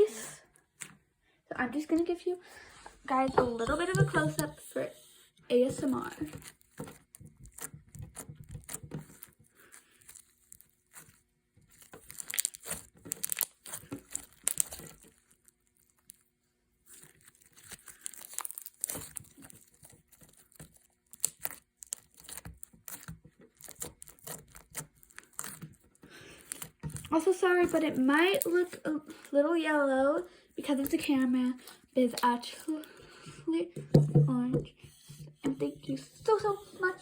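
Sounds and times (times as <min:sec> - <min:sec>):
crunchy slime crackling: 0:05.8 - 0:28.9, 0:30.6 - 0:32.9.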